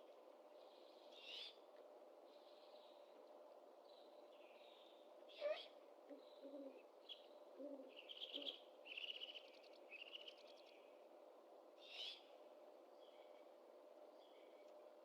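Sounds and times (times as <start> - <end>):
faint steady hum: 0.0 - 15.0
owl low hoots: 5.4 - 6.9, 7.5 - 8.6.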